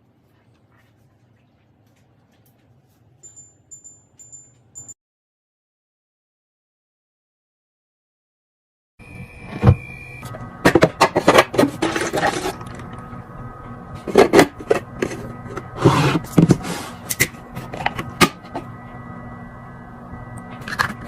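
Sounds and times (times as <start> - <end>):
items clicking and knocking on shelves: 10.6 - 13.0, 14.0 - 18.6.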